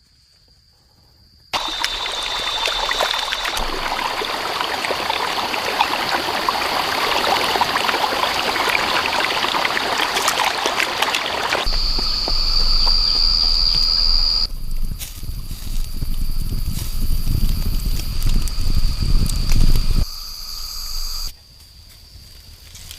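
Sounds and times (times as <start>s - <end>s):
running water: 1.6s - 14.5s
dense crackle: 1.6s - 21.3s
high-pitched whine: 11.6s - 21.3s
low rumble: 11.7s - 20.0s.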